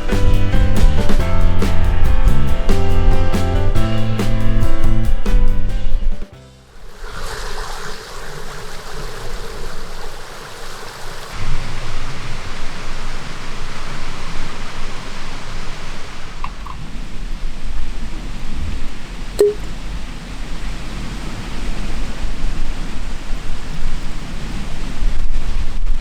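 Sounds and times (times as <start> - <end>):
steady rushing noise: 6.7 - 16.5.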